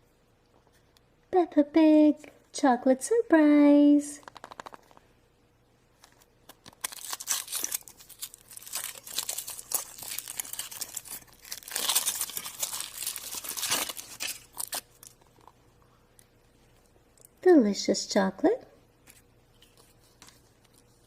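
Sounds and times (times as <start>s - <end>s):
wrapper crinkling and tearing: 6.1s - 15.2s.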